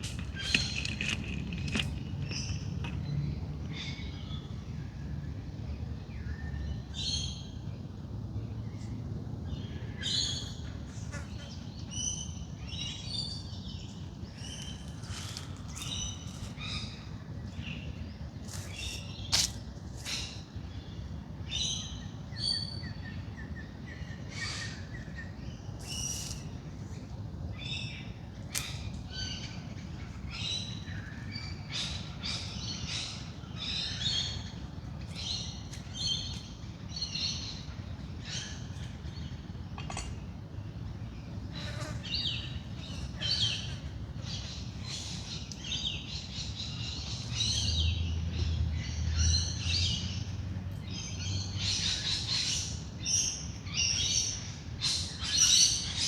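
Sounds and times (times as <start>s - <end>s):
birds chirping and calling: 41.2s - 56.0s.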